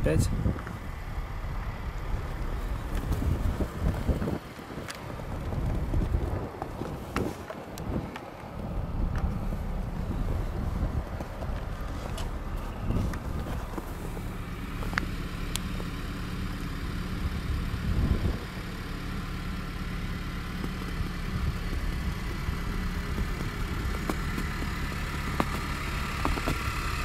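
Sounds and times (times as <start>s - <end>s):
short low rumble: 0.0s - 15.9s
car engine idling: 0.0s - 27.0s.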